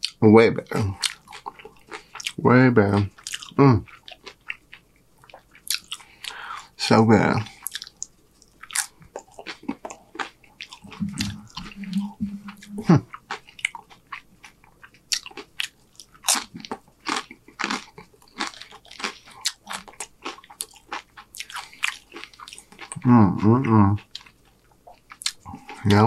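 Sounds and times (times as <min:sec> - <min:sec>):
man crunching tortilla chips: 0:07.6 - 0:11.6, 0:13.2 - 0:23.0
low steady tone: 0:10.8 - 0:13.0.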